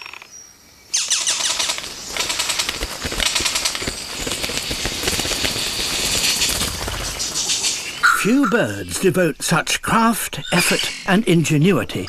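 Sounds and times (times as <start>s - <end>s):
bird harsh buzzing rasp: 0.9s - 8.6s
bird song fast clicks: 0.9s - 8.6s.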